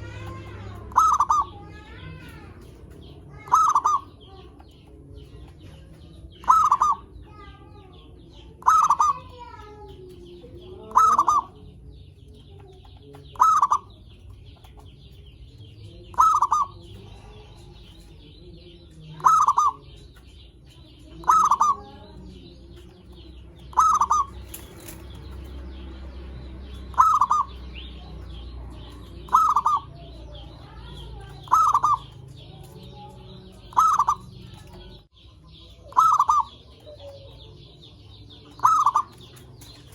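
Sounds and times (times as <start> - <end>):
dove cooing: 0.0 - 4.6, 6.4 - 7.1, 8.6 - 9.5, 10.6 - 11.7, 13.3 - 14.0, 16.1 - 17.4, 19.1 - 20.0, 21.1 - 22.5, 23.6 - 25.2, 26.9 - 35.0, 35.9 - 37.5, 38.4 - 39.9.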